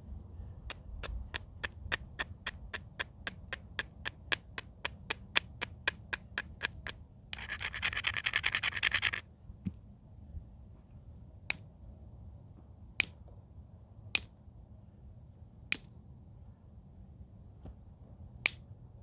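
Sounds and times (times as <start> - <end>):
stone clicking against stone: 0.1 - 9.2
stone scraping: 0.7 - 9.2.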